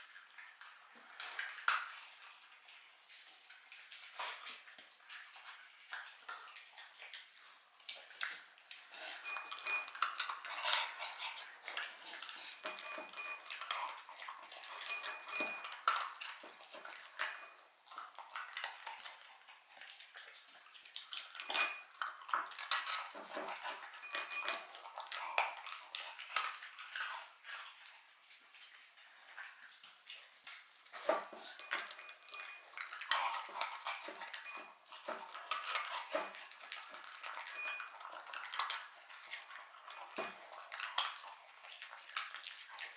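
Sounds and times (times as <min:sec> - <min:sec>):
dog chewing treats: 0:00.7 - 0:42.9
metallic clinks: 0:12.6 - 0:13.8, 0:14.8 - 0:15.8, 0:24.0 - 0:24.8, 0:31.4 - 0:32.6, 0:34.4 - 0:34.8.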